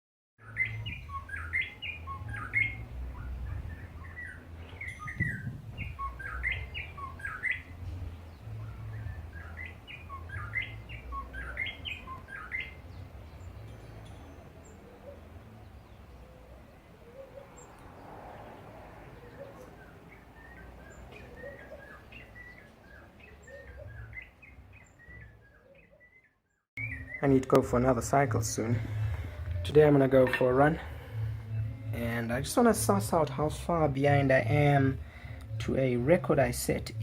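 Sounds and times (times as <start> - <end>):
bird whistling song: 0.4 - 17.8, 19.1 - 27.5.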